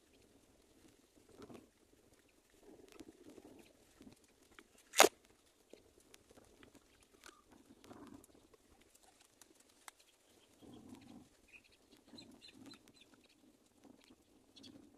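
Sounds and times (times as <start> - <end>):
small clicks: 4.0 - 5.3
soft low bird calls: 10.0 - 14.9.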